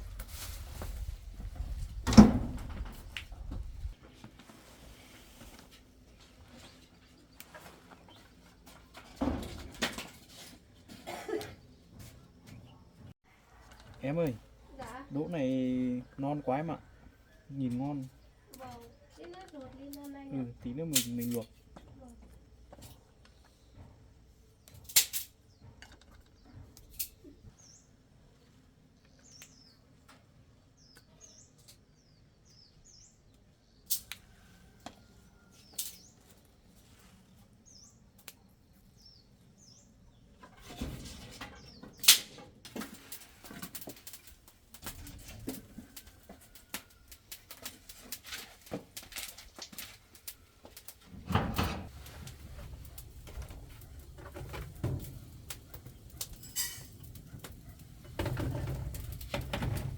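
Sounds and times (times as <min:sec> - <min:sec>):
small birds chirping: 0:11.5 - 0:40.5
sharp snaps and clicks: 0:29.2 - 0:29.7, 0:33.9 - 0:34.2
rustling with clicks and knocks: 0:33.9 - 0:59.9.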